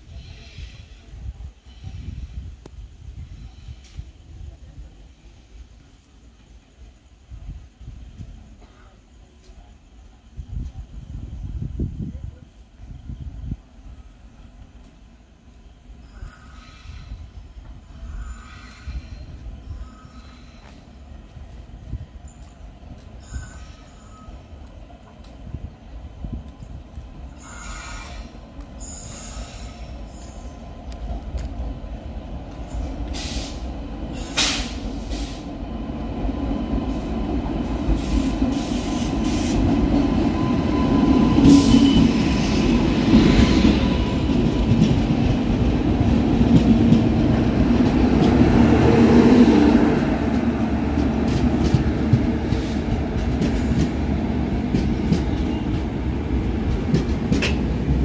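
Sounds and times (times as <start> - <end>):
train wheels rumbling: 0.0 - 58.0
faint wheel squeal: 16.0 - 21.0, 23.2 - 24.5, 27.4 - 30.6.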